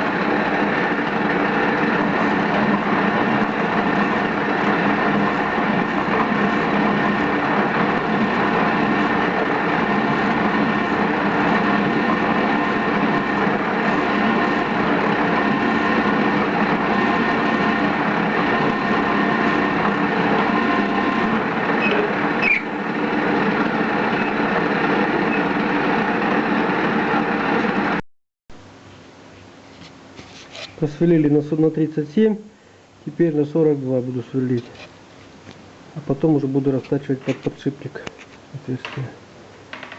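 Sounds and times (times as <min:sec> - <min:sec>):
metal lathe cutting steel: 0:00.0 - 0:28.0.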